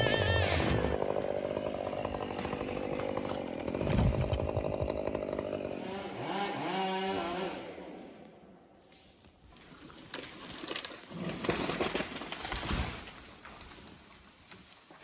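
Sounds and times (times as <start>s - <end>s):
chainsaw cutting wood: 0.0s - 8.2s.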